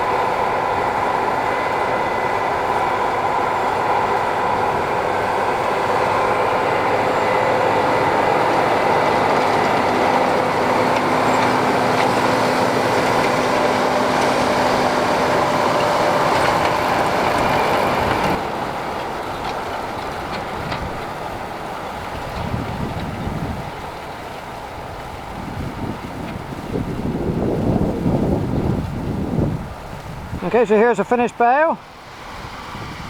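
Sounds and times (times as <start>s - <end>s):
machine whine: 0.0s - 20.2s
tractor and baler droning: 0.0s - 33.0s.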